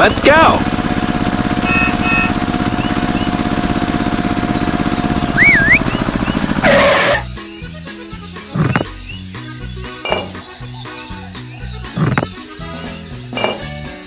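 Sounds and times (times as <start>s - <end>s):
short noisy burst: 0.0s - 7.3s
small engine chugging: 0.0s - 7.4s, 8.5s - 9.2s, 10.0s - 12.8s
music: 0.0s - 14.0s
high chirps: 0.6s - 7.5s.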